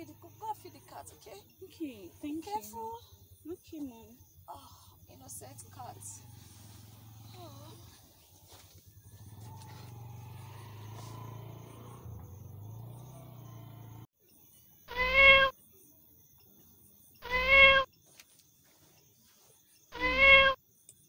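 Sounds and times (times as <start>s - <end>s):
cat meowing: 14.9s - 15.5s, 17.2s - 17.9s, 20.0s - 20.6s.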